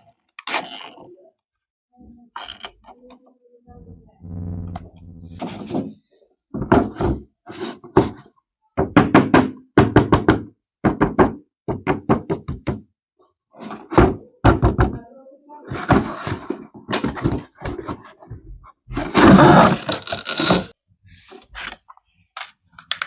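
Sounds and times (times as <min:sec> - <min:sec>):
low buzzing tone: 0:03.8 - 0:05.4
plastic parts knocking and clattering: 0:05.4 - 0:12.9, 0:13.6 - 0:20.8.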